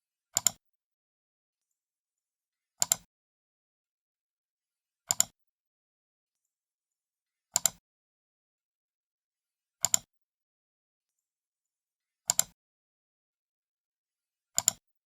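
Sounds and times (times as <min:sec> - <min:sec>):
computer mouse clicks: 0:00.4 - 0:00.6, 0:02.8 - 0:03.1, 0:05.1 - 0:05.4, 0:07.6 - 0:07.8, 0:09.8 - 0:10.1, 0:12.3 - 0:12.6, 0:14.6 - 0:14.8.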